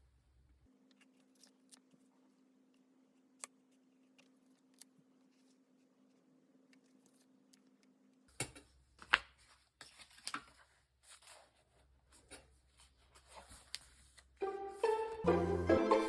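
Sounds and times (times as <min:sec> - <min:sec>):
paper rustling: 0:09.0 - 0:15.2.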